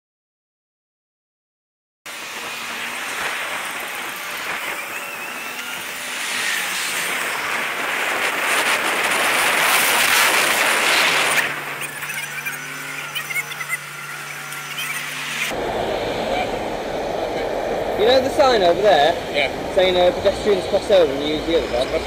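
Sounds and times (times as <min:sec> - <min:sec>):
road traffic: 0:02.1 - 0:22.0
steady low hum: 0:10.4 - 0:22.0.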